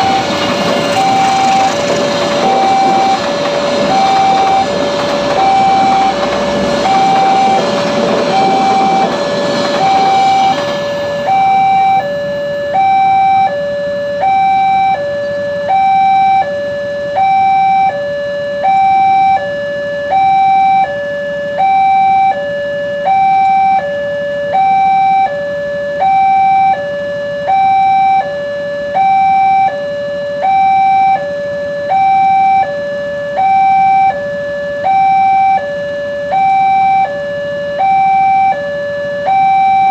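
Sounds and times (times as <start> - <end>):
passing train rumble: 0.0 - 12.7
level-crossing alarm two tones: 0.0 - 39.9.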